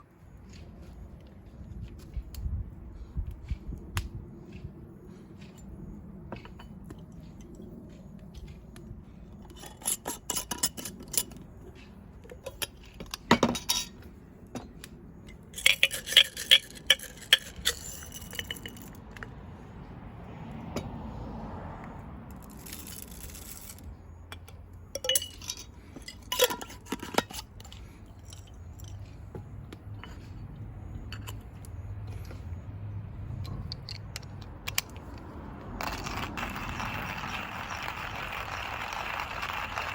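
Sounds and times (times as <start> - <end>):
cookware clinking and scraping: 25.0 - 27.5.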